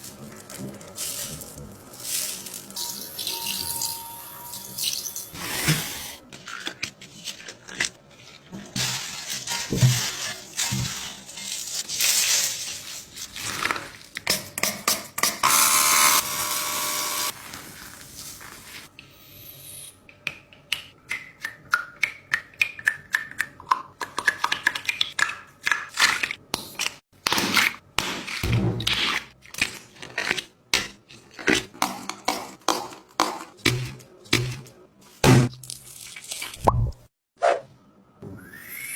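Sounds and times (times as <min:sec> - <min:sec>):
slime squelching by hand: 0:35.5 - 0:36.9.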